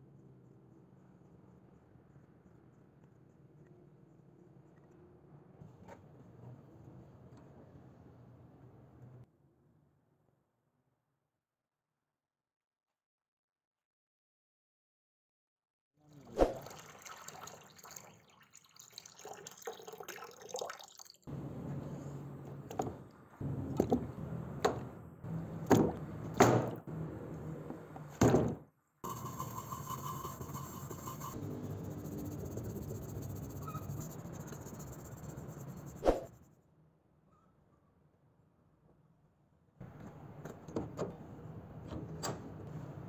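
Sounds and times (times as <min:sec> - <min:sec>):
water splashing in a tub: 0:16.2 - 0:21.3.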